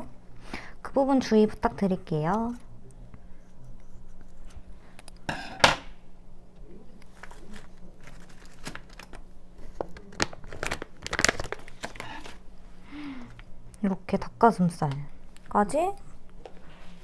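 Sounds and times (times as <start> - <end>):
packaging crinkling: 7.0 - 12.4.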